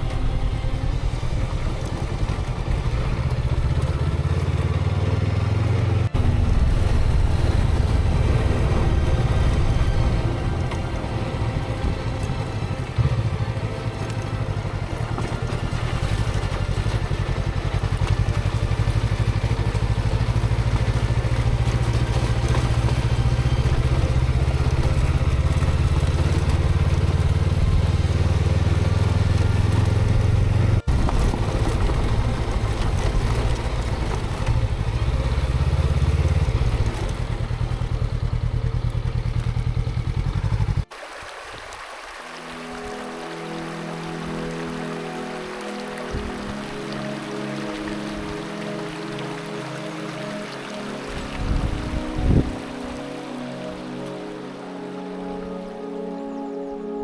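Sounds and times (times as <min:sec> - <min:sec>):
motorcycle engine running: 0:00.0 - 0:40.9, 0:51.1 - 0:52.6
wind and road noise: 0:00.0 - 0:56.7.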